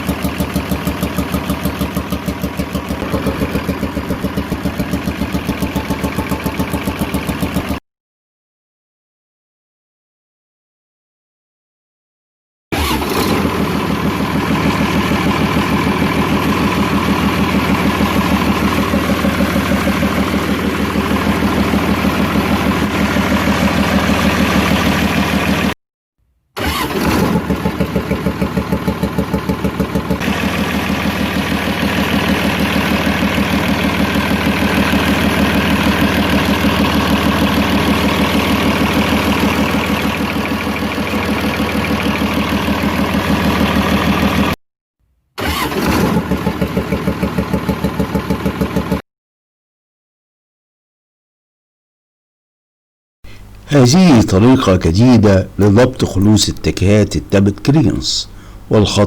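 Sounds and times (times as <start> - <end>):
diesel engine idling: 0.0 - 7.8, 12.8 - 25.8, 27.4 - 44.6, 46.2 - 49.0, 53.3 - 59.0.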